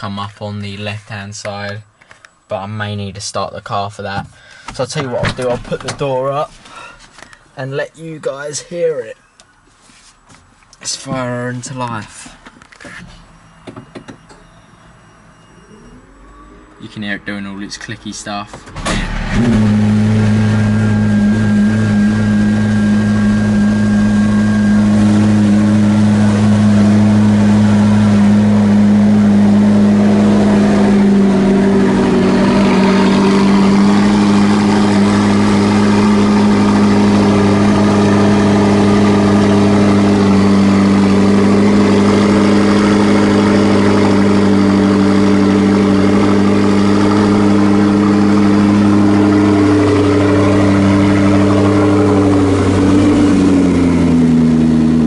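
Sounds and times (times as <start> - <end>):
car engine idling loudly: 18.8 - 55.0.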